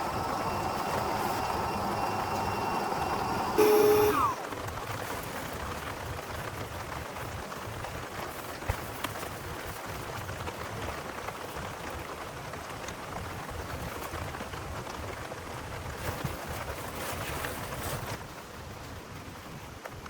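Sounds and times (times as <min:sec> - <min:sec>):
rain hissing: 0:00.0 - 0:04.6.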